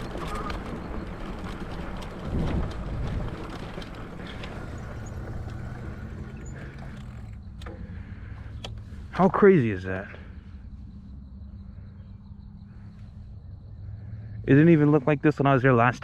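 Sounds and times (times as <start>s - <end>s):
electric bike motor hum: 0.0s - 9.1s
wind rumbling on microphone: 0.0s - 9.1s
bike clicks: 0.0s - 9.3s.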